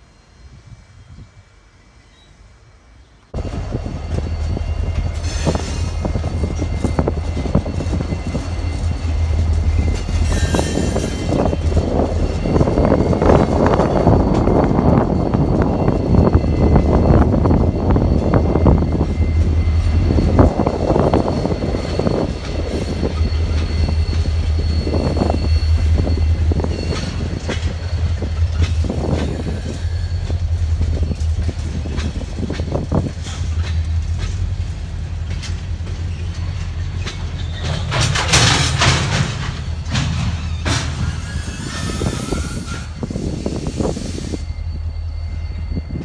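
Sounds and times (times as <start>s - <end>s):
diesel locomotive passing: 0.0s - 46.0s
low train rumble: 0.0s - 46.0s
wheels clicking over rail joints: 26.9s - 41.7s.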